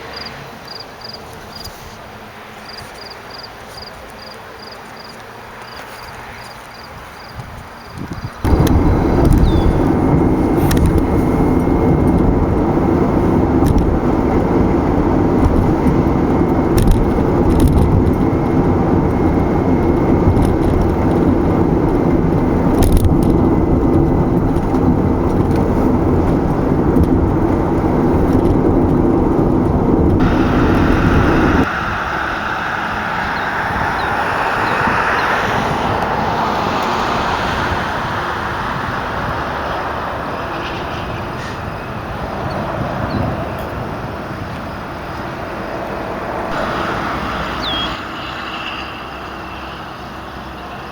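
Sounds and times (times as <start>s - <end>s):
traffic hiss: 0.0s - 13.7s, 30.2s - 42.9s, 43.6s - 50.9s
car road noise: 0.0s - 50.9s.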